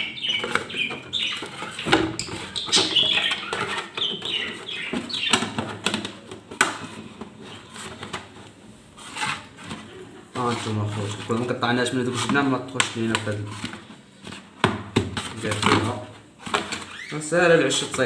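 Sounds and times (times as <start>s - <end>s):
small birds chirping: 0.0s - 5.8s
plastic knocks: 14.6s - 16.8s.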